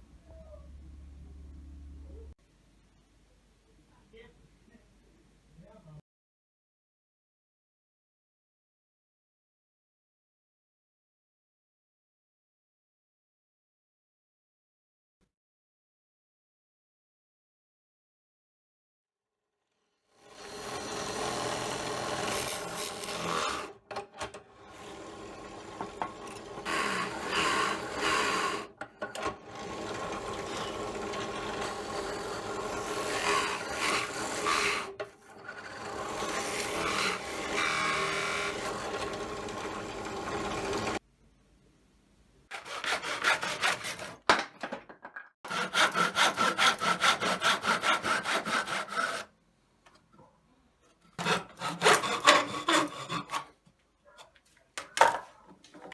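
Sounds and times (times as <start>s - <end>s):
hand saw sawing: 20.2s - 41.0s, 42.5s - 44.3s, 45.5s - 49.3s, 51.1s - 53.6s
rasping on wood: 24.6s - 41.0s, 42.5s - 44.2s, 45.5s - 49.3s, 51.2s - 53.5s.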